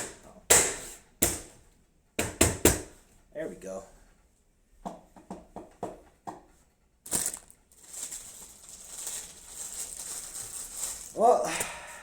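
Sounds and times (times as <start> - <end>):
rustling crinkling noise: 7.1 - 11.4.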